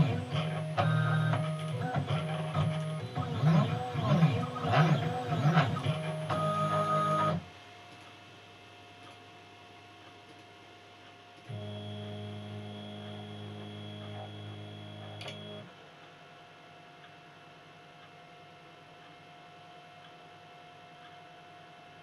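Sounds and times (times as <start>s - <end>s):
faint electrical hum: 0.0s - 22.0s
small click: 15.1s - 15.7s.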